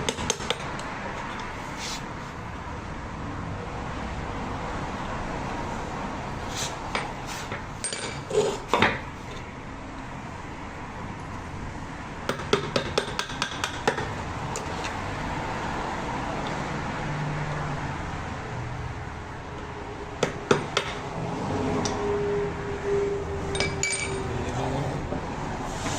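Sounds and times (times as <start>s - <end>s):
hand tools tapping on metal: 0.0s - 1.5s, 23.5s - 24.4s.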